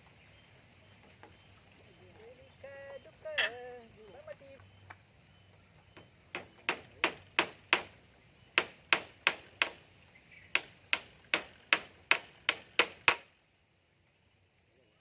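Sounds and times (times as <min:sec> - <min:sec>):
hammer striking nails: 0:06.3 - 0:07.9, 0:08.6 - 0:09.8, 0:10.6 - 0:13.3.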